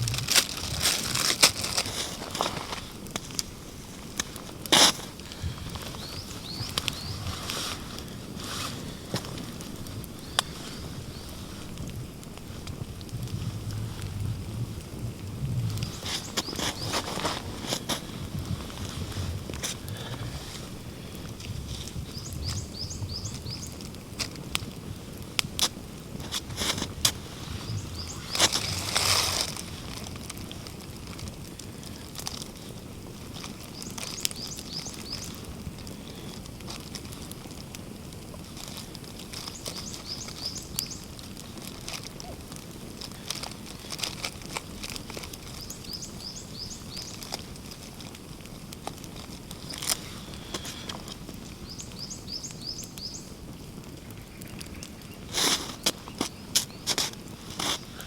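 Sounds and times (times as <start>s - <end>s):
low outdoor background: 0.0s - 58.0s
small bird chirping: 5.8s - 7.4s, 15.7s - 17.4s, 21.9s - 23.8s, 27.5s - 29.0s, 33.7s - 35.4s, 39.4s - 41.1s, 45.5s - 47.3s, 51.6s - 53.3s.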